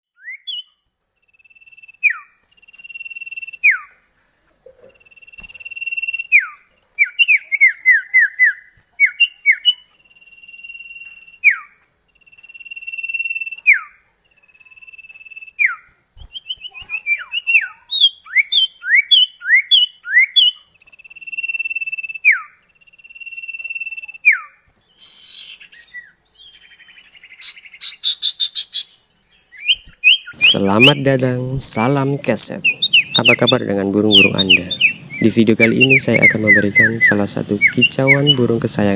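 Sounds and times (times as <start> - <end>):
bird singing whistles: 15.6 - 20.6, 23.3 - 38.9
bird rattling trill: 30.4 - 38.9.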